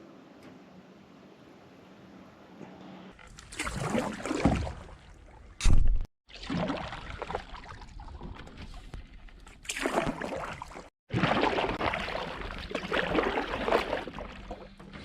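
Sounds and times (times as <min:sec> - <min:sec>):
paddle splashing in water: 0:06.3 - 0:15.0.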